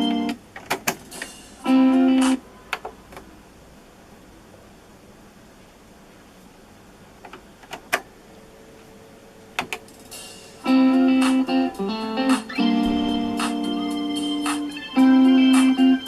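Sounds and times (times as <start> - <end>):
music from boombox speakers: 0.0 - 0.4, 1.0 - 2.4, 9.9 - 16.0.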